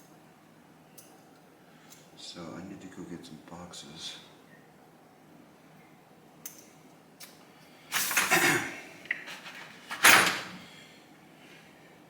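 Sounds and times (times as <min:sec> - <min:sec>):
rustling scraping handling noise: 0:07.9 - 0:10.6.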